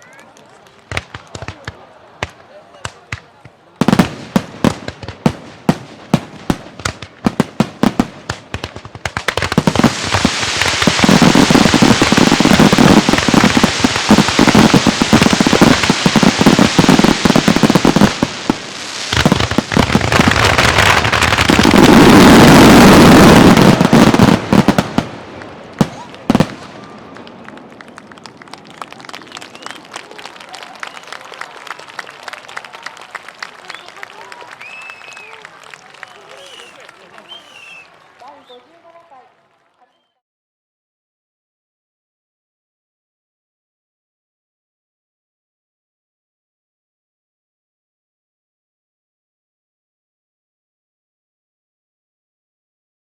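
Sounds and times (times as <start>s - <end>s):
fireworks bangs and crackling: 0.0s - 39.2s.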